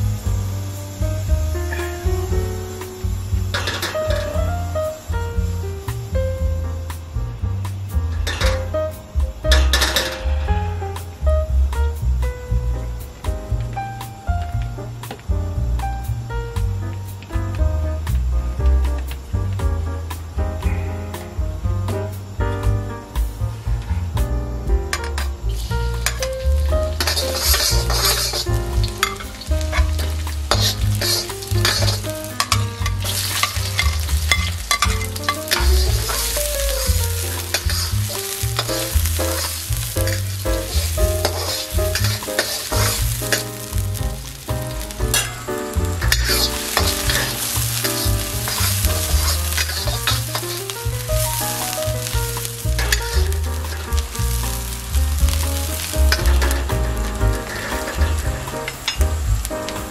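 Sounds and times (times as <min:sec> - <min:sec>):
food sizzling in hot oil: 0:00.0 - 0:22.4, 0:23.1 - 0:59.9
steady low rumble: 0:00.0 - 0:59.9
spatula scraping and clanking wok: 0:00.1 - 0:06.1, 0:07.7 - 0:11.2, 0:25.0 - 0:59.9.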